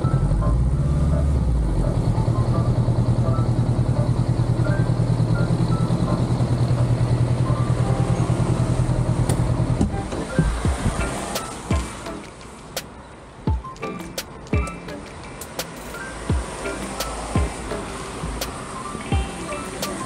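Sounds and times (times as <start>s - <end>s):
engine knocks: 8.9s - 12.2s, 15.4s - 20.0s.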